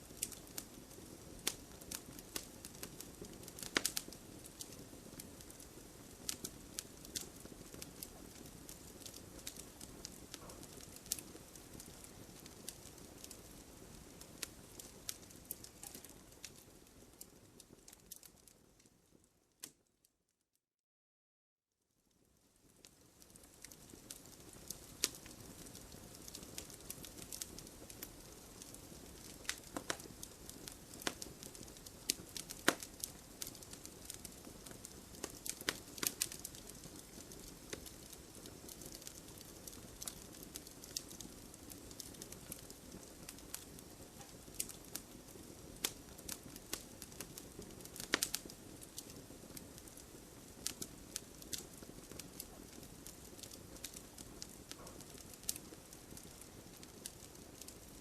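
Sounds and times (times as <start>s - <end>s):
wood fire crackling: 0.0s - 19.9s, 22.1s - 58.0s.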